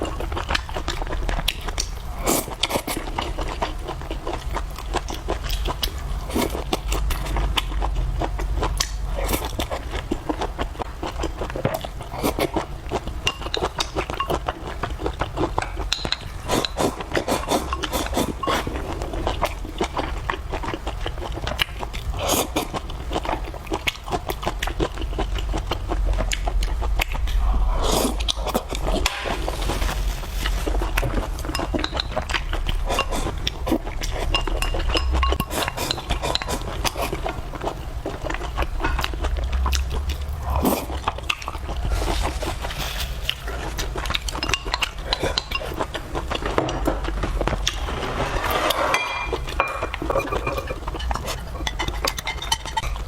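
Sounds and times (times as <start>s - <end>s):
chewing and slurping noodles: 0.0s - 53.0s
utensils clinking on dishes: 15.9s - 18.8s, 34.0s - 36.7s, 47.6s - 53.0s.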